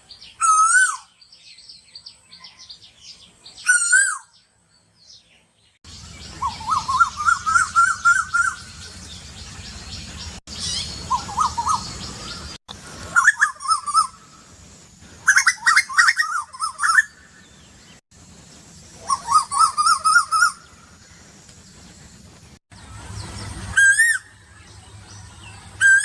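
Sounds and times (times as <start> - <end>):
bird wavering call: 0.4 - 1.2, 3.6 - 4.4, 5.9 - 8.9, 10.5 - 14.4, 15.2 - 17.4, 19.0 - 20.8, 23.7 - 24.6, 25.8 - 26.0.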